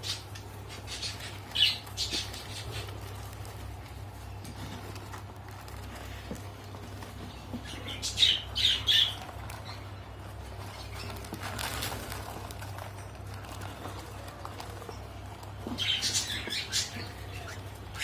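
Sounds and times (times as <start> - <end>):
canary harsh calls: 0.0 - 3.3, 7.6 - 10.0, 15.7 - 18.0
steady low hum: 0.0 - 18.0.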